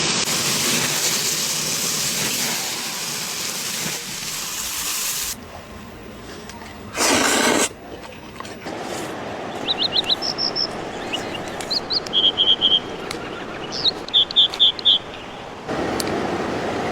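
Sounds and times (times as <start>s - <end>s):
burst of rushing water: 0.0s - 5.4s
stream rushing over stones: 8.6s - 16.9s.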